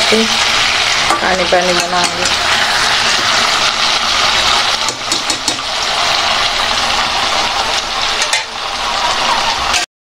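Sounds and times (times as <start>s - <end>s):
curry sizzling in a pan: 0.0s - 9.9s
spatula clicking against pan: 4.9s - 5.6s.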